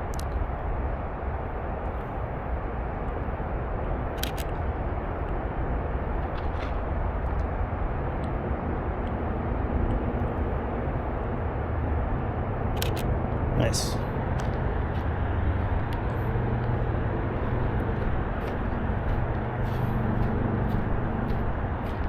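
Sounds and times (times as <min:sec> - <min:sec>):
steady low rumble: 0:00.0 - 0:22.0
camera shutter clicking: 0:04.2 - 0:04.5, 0:12.8 - 0:13.1.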